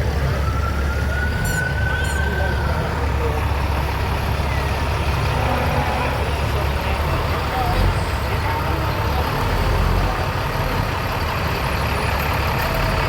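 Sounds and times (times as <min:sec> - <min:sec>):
siren wailing: 0:00.0 - 0:03.4
low rumble of vehicle engines: 0:00.0 - 0:13.0.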